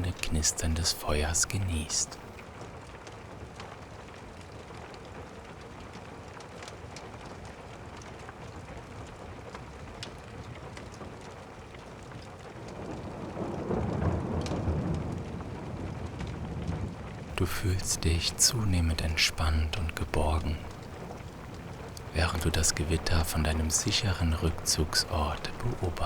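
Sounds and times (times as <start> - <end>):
fireplace fire crackling: 0.0 - 2.4, 17.3 - 26.0
steady rain: 0.0 - 2.4, 3.6 - 26.0
low rumble of thunder: 12.8 - 17.2.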